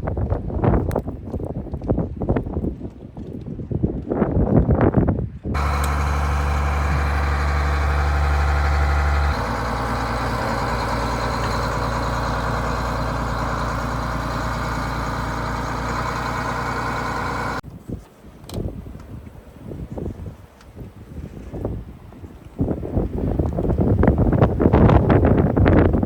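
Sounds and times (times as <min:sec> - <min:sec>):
wind buffeting microphone: 0:00.0 - 0:26.0
truck engine idling: 0:05.6 - 0:17.6.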